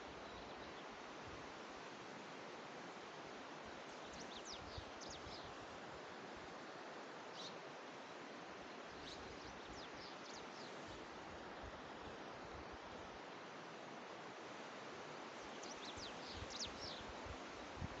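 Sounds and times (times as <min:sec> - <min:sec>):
small birds chirping: 0:08.9 - 0:11.0, 0:15.4 - 0:17.1.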